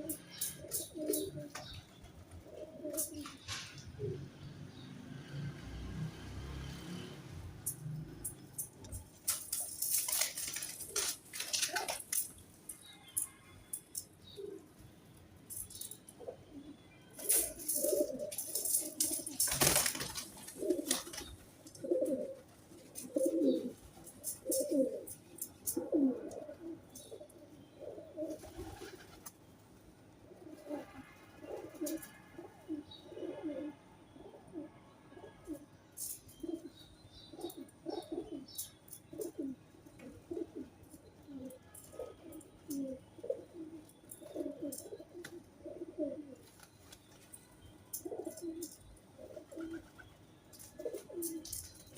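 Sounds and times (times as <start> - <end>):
pigeons cooing: 0.0 - 4.4, 8.9 - 12.3, 15.8 - 29.3, 30.3 - 46.5, 47.9 - 50.0, 50.7 - 51.7.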